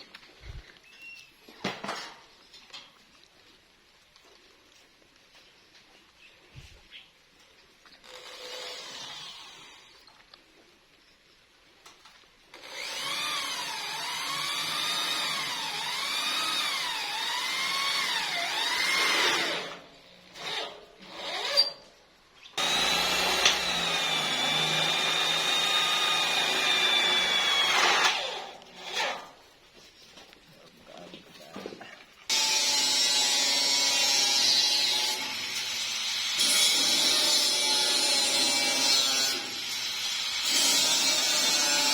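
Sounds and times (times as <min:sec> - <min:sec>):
handheld power tool running: 0:12.6 - 0:19.8, 0:22.6 - 0:29.2, 0:32.3 - 0:41.9.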